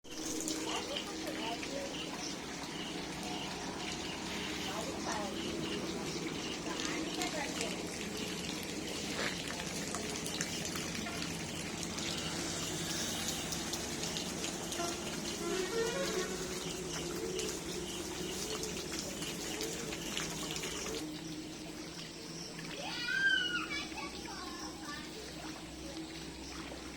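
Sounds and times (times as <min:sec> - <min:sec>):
heavy rain falling: 0:00.2 - 0:21.0.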